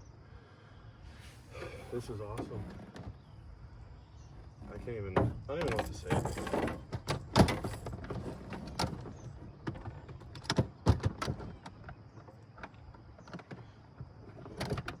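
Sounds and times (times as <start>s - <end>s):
knocks and clatter: 4.6s - 13.7s.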